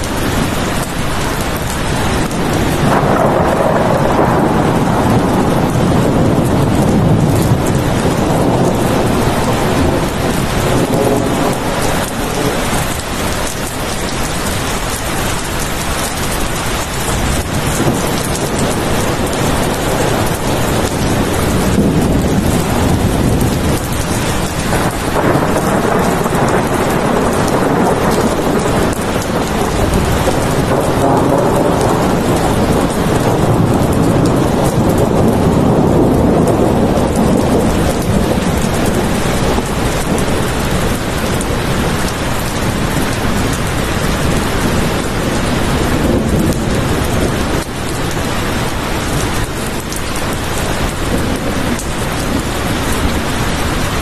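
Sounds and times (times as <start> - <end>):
heavy rain falling: 0.0 - 54.0
thunder rumbling: 0.0 - 54.0.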